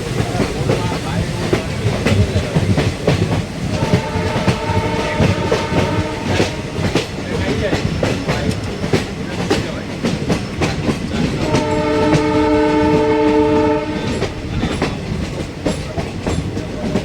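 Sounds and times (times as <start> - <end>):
train wheels clattering: 0.0 - 17.0
locomotive horn blast: 3.7 - 7.1, 11.4 - 14.4.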